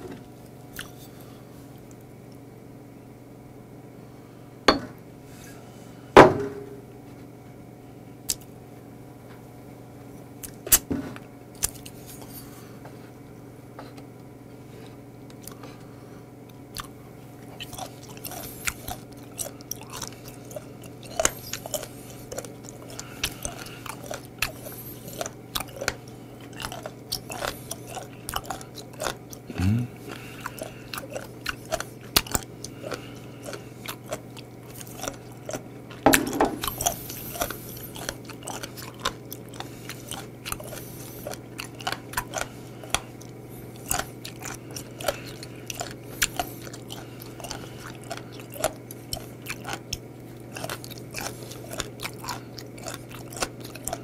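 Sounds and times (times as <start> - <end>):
crunchy chewing: 0.0 - 2.5, 8.2 - 8.6, 10.1 - 10.9, 11.5 - 13.2, 13.8 - 54.0.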